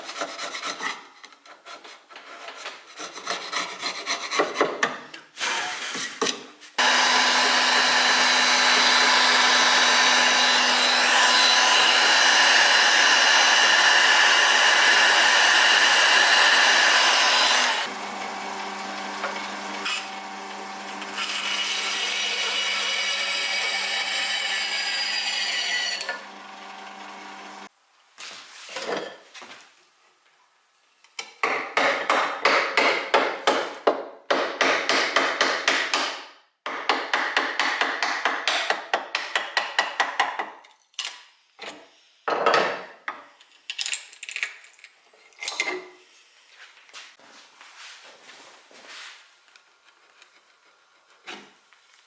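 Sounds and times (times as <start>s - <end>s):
power tool running: 6.8s - 27.7s.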